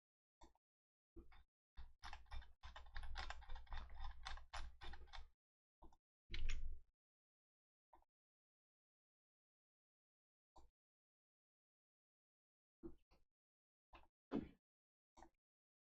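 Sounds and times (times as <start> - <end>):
computer keyboard typing: 2.0 - 5.2.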